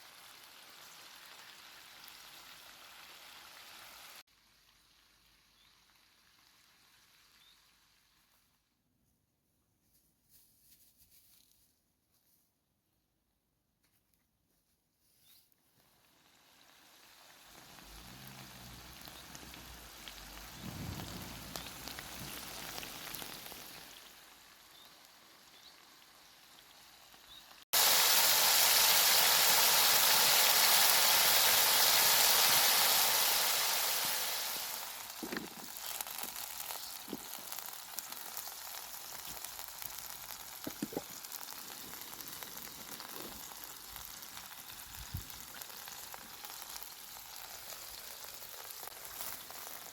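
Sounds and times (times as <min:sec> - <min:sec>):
food sizzling in a pan: 0:00.0 - 0:08.3, 0:15.8 - 0:49.9
fat popping: 0:35.0 - 0:45.7.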